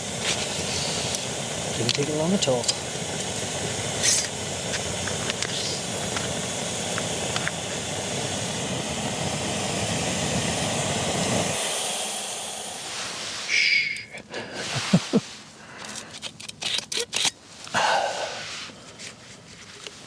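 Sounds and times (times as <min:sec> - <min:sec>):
gas stove burner hissing: 0:00.0 - 0:16.3.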